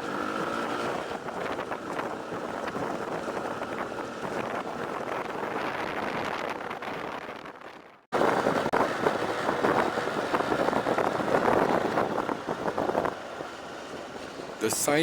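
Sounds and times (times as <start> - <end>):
motorbike road noise: 0.0 - 15.0
wind rushing over microphone: 0.1 - 15.0.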